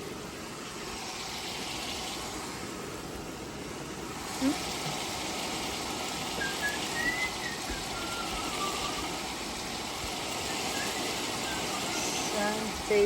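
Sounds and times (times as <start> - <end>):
faint thin whistling tones: 6.4 - 9.2, 10.3 - 13.0.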